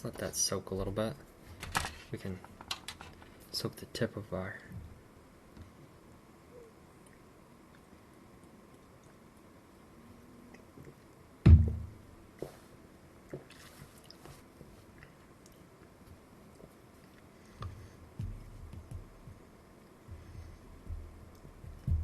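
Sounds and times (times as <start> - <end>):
soft hiss: 0.0 - 22.0
thumps on a workbench: 11.5 - 12.0.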